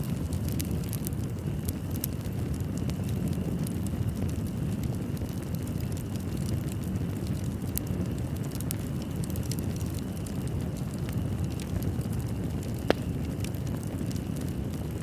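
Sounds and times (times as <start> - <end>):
burning logs rumbling: 0.0 - 15.0
fire crackling: 0.0 - 15.0
sharp pop from fire: 12.8 - 13.2.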